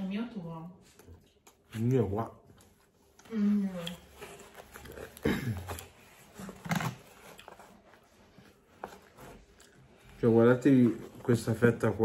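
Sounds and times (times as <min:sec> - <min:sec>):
man chewing food: 0:02.6 - 0:10.0.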